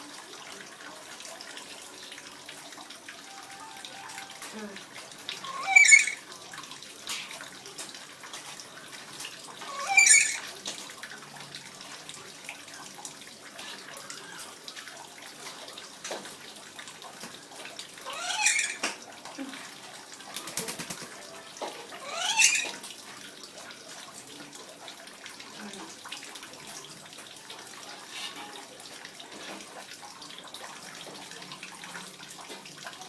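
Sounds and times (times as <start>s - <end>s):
water running: 0.0s - 33.0s
bird squawking high-pitched: 5.4s - 6.3s, 9.6s - 10.5s, 18.0s - 18.8s, 21.9s - 22.8s.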